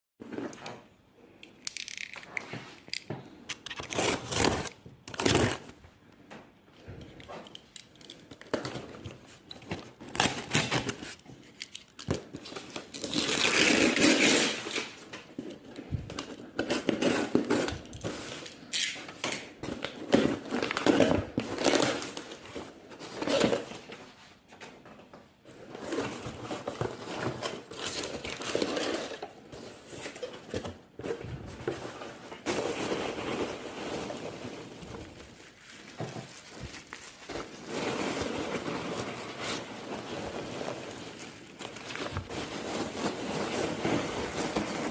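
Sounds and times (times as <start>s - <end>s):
crinkly material rustling: 30.8s - 44.9s.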